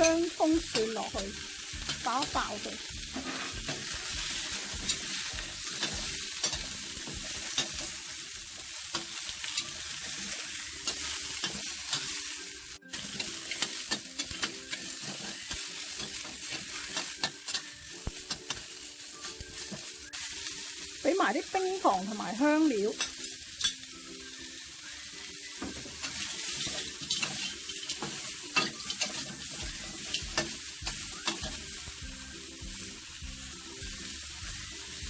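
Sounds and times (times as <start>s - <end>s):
food sizzling in hot oil: 0.0s - 35.0s
spatula scraping a pan: 2.8s - 12.3s, 12.9s - 18.9s, 25.7s - 32.0s.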